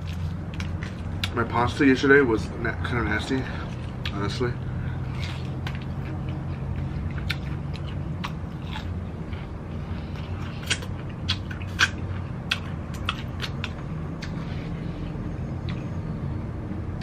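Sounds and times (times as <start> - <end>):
steady low hum: 0.0 - 17.0
wet mouth smacks chewing: 5.1 - 8.9, 10.2 - 14.5.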